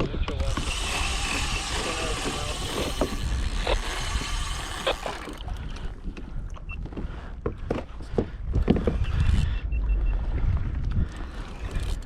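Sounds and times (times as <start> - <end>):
wind on microphone: 0.0 - 7.0, 7.7 - 12.0
water splashing against kayak hull: 0.5 - 7.6.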